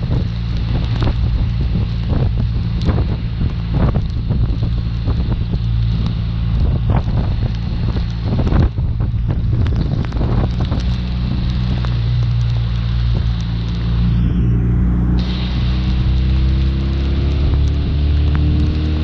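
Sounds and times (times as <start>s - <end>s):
motorcycle engine cruising: 0.0s - 19.0s
wind buffeting microphone: 0.0s - 19.0s.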